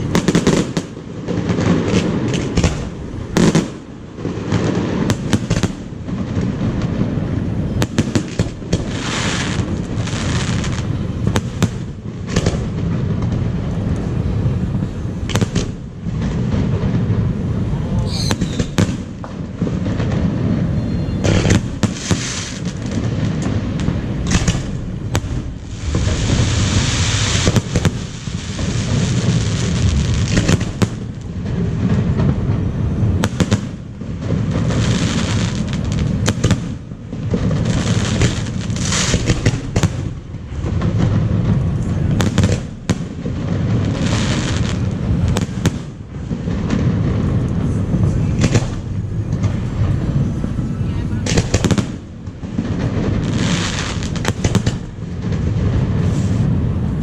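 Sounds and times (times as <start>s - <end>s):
fireworks crackling: 0.0s - 57.0s
firework shell bursts: 18.0s - 22.8s, 23.4s - 29.2s
low rumble: 46.5s - 53.2s.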